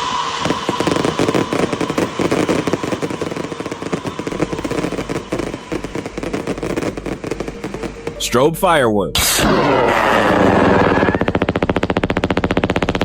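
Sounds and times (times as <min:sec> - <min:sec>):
fireworks crackling: 0:00.0 - 0:08.3, 0:09.7 - 0:13.0.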